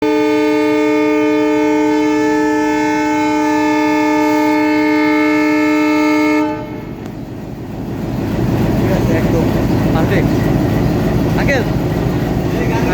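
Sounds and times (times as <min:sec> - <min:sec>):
locomotive air horn blast: 0:00.0 - 0:07.1
low train rumble: 0:00.0 - 0:12.9.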